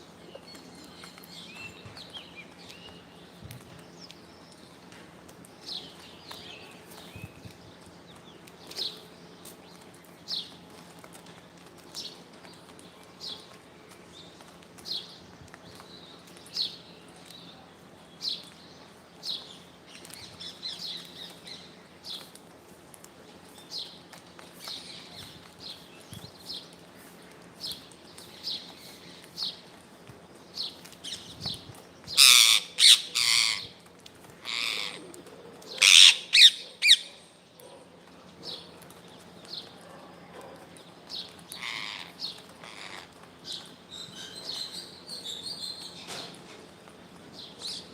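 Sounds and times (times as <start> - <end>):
parrot squawking harshly: 35.8 - 37.0.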